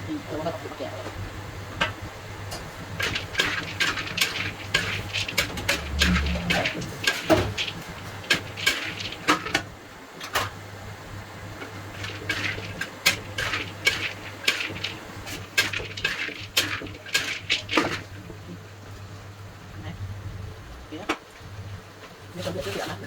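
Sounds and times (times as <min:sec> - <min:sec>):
steady low hum: 0:00.0 - 0:22.4
metal utensils clinking on dishes: 0:11.9 - 0:18.1.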